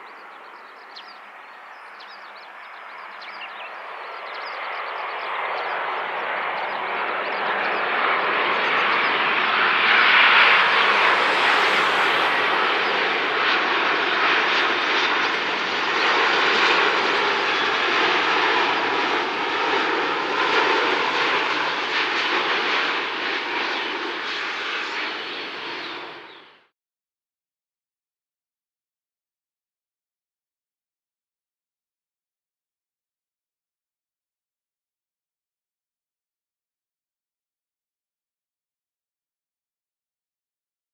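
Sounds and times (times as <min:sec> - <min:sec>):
jet airliner passing: 0:00.0 - 0:26.7.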